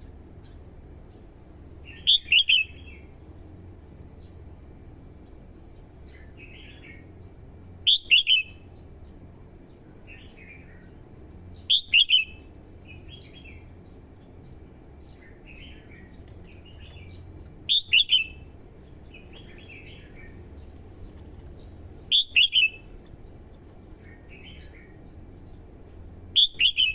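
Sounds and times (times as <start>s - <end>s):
bird whistling phrases: 1.9s - 3.0s, 7.9s - 8.6s, 11.7s - 12.4s, 17.7s - 18.4s, 22.1s - 22.8s, 26.4s - 26.9s.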